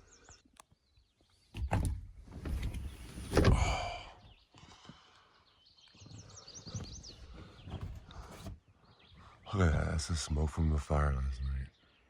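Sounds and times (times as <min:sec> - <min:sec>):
knocks and handling noise: 0:06.7 - 0:08.6.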